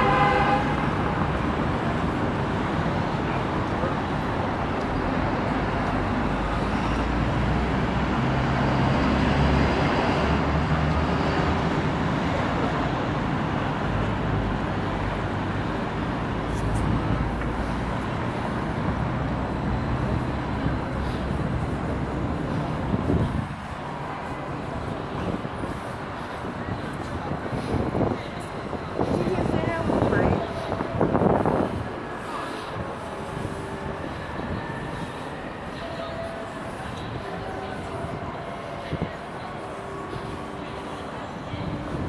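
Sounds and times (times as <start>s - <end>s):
traffic din: 0.0s - 42.0s.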